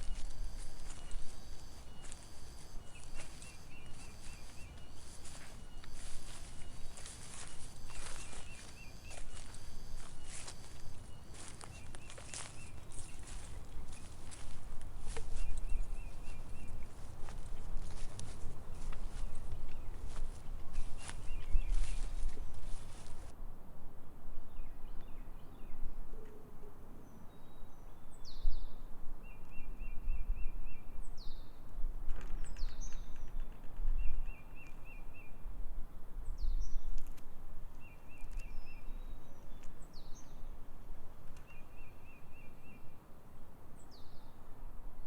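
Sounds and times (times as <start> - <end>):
bird trilling: 0.0 - 23.3.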